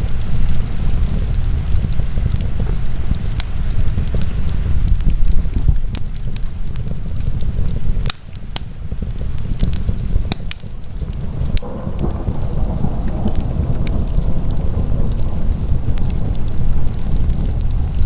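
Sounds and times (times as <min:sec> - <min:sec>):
wood fire crackling and popping: 0:00.0 - 0:18.0
steady low rumble: 0:08.8 - 0:18.0.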